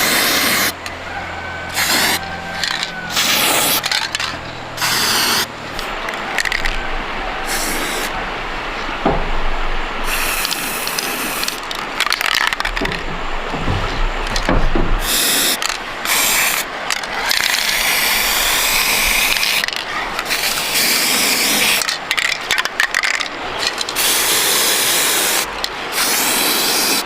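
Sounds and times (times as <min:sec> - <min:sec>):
low hum: 0:00.7 - 0:16.1.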